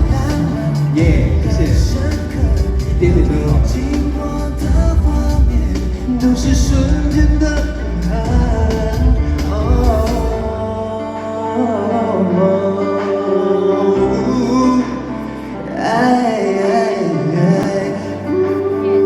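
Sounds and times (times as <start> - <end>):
band accompaniment: 0.0 - 19.0
man singing: 0.0 - 19.0.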